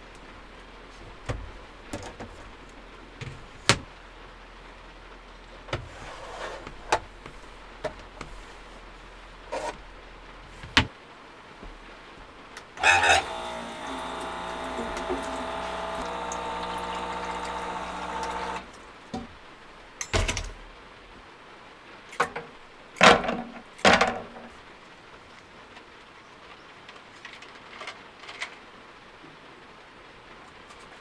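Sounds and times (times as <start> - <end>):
electric motor whining: 12.8 - 18.8.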